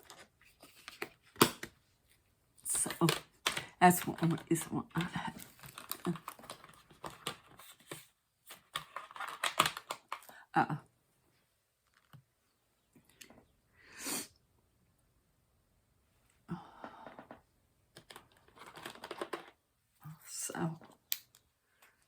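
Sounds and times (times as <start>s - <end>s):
small plastic clicks and rattles: 2.9s - 8.0s, 8.7s - 10.3s, 17.9s - 19.6s.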